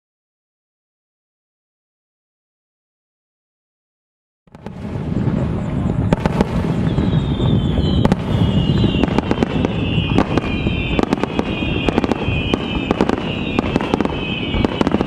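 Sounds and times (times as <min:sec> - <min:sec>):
continuous rumble: 0:04.5 - 0:10.4
firework shells bursting: 0:04.5 - 0:15.0
high whistling fireworks: 0:04.5 - 0:15.0.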